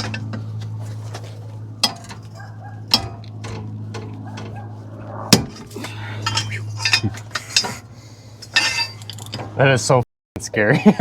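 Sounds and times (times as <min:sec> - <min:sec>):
steady low hum: 0:00.0 - 0:10.9
steel tools clinking on metal: 0:06.2 - 0:07.8, 0:08.4 - 0:09.4.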